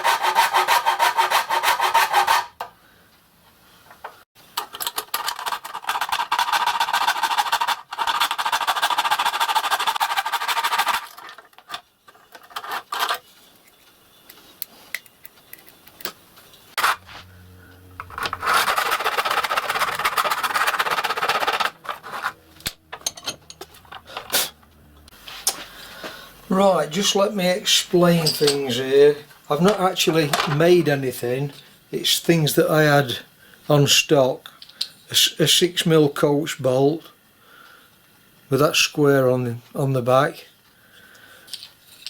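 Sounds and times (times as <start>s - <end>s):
rasping on plastic: 18.0s - 22.4s.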